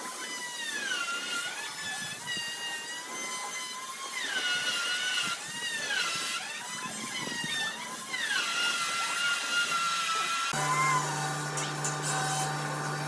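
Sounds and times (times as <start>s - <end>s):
power tool whining in wood: 0.0s - 13.0s.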